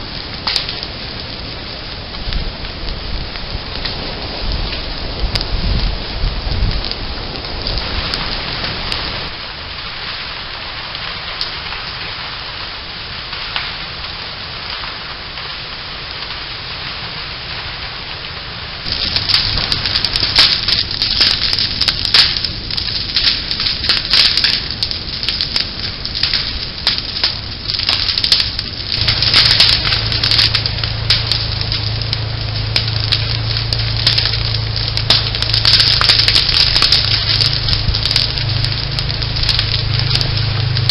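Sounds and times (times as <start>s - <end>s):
brush fire crackling and popping: 0.0s - 40.9s
low steady rumble: 18.5s - 40.9s.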